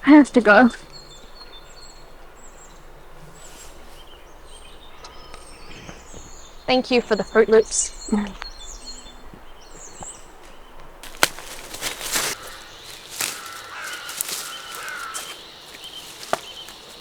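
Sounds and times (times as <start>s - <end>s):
birds calling: 0.0s - 17.0s
sharp cracks: 11.0s - 17.0s
wavering bird call: 12.2s - 17.0s.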